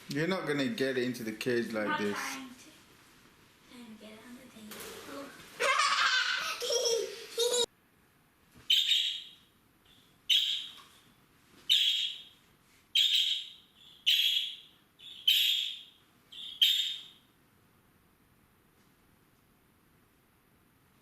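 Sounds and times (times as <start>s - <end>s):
bird chirping: 8.7s - 10.8s, 11.7s - 12.4s, 13.0s - 17.3s.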